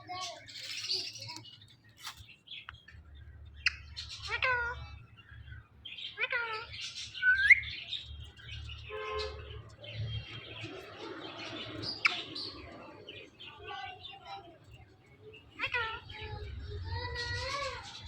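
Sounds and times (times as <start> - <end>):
parakeets calling: 0.0 - 18.0
parakeets chattering softly: 0.0 - 18.0.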